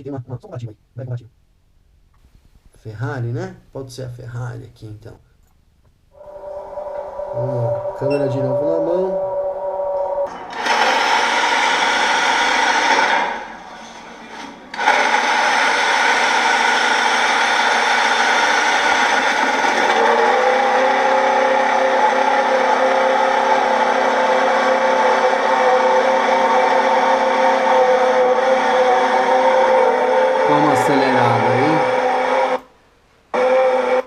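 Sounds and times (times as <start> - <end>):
racing engine at high revs: 14.8 - 32.7, 33.4 - 34.0.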